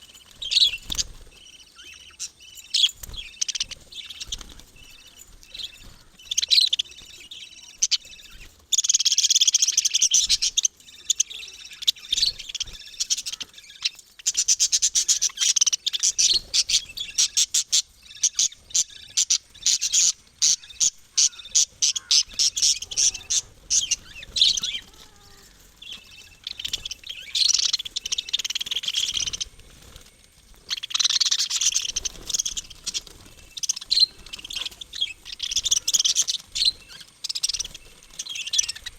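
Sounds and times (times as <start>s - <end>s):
parrots chirping shrilly: 7.8s - 29.9s, 30.6s - 38.9s.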